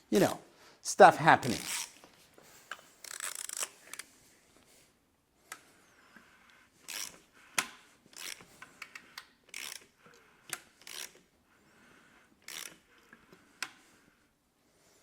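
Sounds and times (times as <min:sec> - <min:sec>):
wrench scraping strokes: 0:02.7 - 0:04.1, 0:05.8 - 0:07.6, 0:08.2 - 0:13.9.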